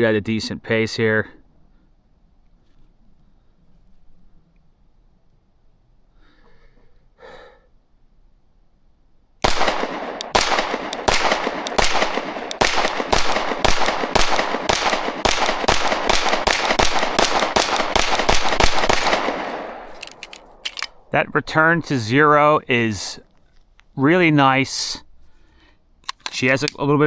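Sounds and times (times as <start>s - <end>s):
soft breath: 6.1s - 7.8s, 25.2s - 25.9s
pistol shots: 9.4s - 21.2s.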